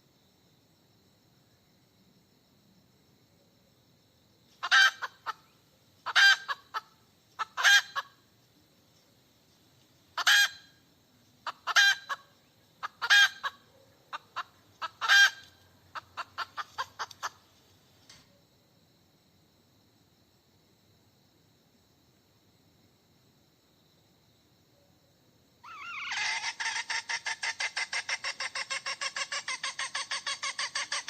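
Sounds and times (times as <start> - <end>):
hen cackling: 4.6 - 8.2, 10.2 - 10.8, 11.4 - 17.4, 25.6 - 31.0.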